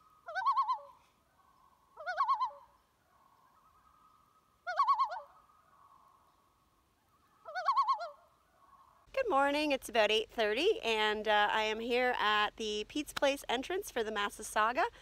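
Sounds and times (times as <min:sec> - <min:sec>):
bird wavering call: 0:00.0 - 0:09.1
faint steady tone: 0:00.0 - 0:15.0.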